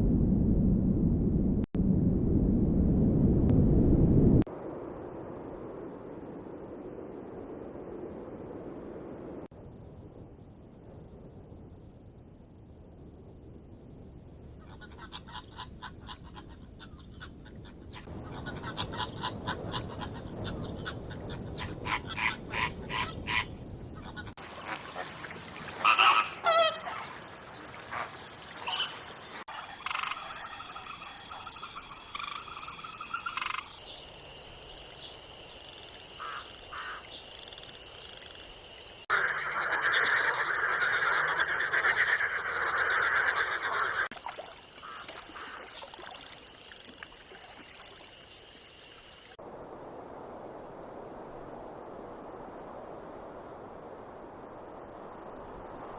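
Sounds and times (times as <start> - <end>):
rapid pulsing animal calls: 25.8 - 34.0, 36.1 - 46.7
short chirping calls: 29.5 - 39.0.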